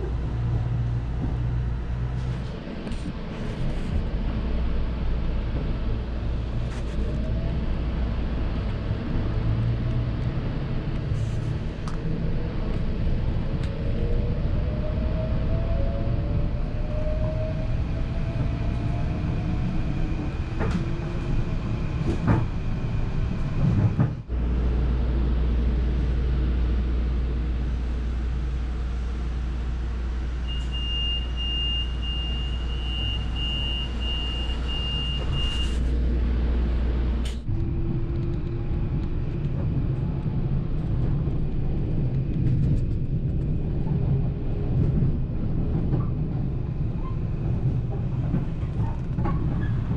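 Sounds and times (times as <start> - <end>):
low hum of standing train: 0.0 - 49.9
train running rumble and whine: 0.0 - 49.9
high warning beeps: 30.5 - 35.8.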